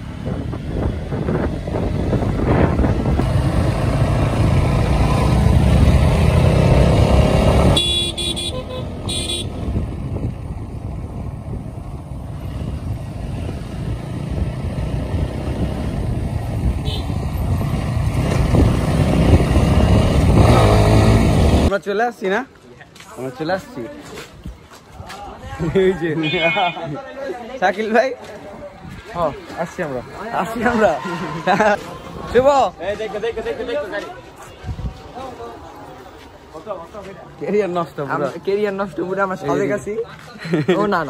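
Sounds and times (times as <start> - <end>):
wind noise on microphone: 0.0 - 4.8, 6.4 - 21.7, 34.4 - 35.3
motorcycle engine and road rumble: 0.0 - 21.8
vehicle horn: 7.6 - 9.6, 16.8 - 17.2, 26.2 - 27.0.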